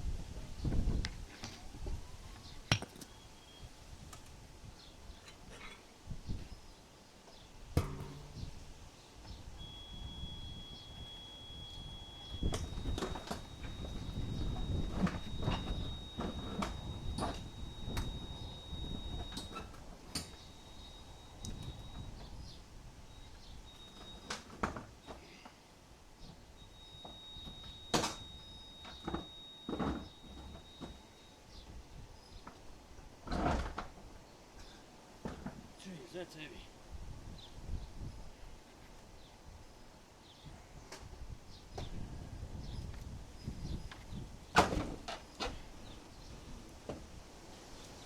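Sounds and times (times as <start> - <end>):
knocks on metal shed roof: 7.8 - 8.6
thin high tone: 7.8 - 8.6
low metallic ringing: 7.8 - 14.9
faint chirps: 7.8 - 19.7.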